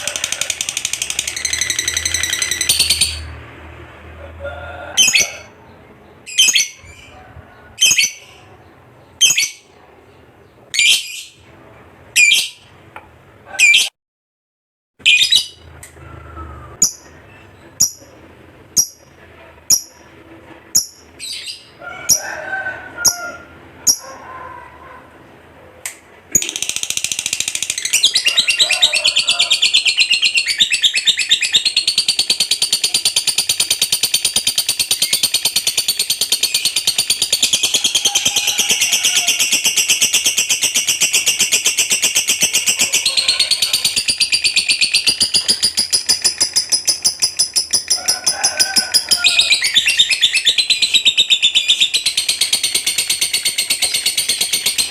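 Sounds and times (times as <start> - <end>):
lovebird chirping and trilling: 0.0 - 3.4, 5.0 - 5.6, 6.3 - 8.5, 9.2 - 9.7, 10.7 - 11.4, 12.2 - 12.7, 13.6 - 13.9, 15.0 - 15.7, 16.7 - 18.1, 18.8 - 19.1, 19.7 - 20.0, 20.8 - 22.2, 23.8 - 24.2, 26.3 - 54.9.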